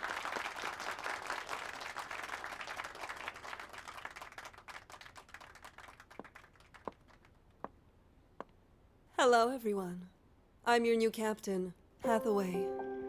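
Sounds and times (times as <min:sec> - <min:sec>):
people applauding: 0:00.0 - 0:07.4.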